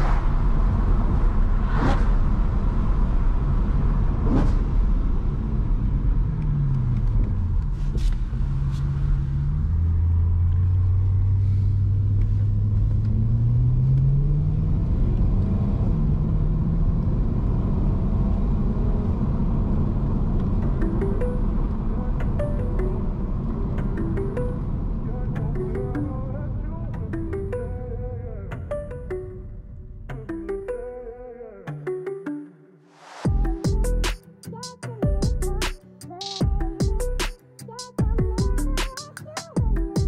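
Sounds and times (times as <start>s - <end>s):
passing vehicles whooshing: 0.0s - 22.2s
car engine from inside cabin: 2.2s - 22.1s.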